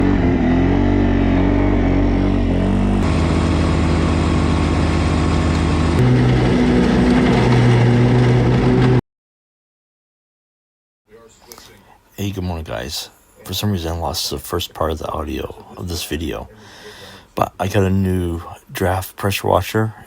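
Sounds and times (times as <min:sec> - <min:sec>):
loud engine running: 0:00.0 - 0:09.0.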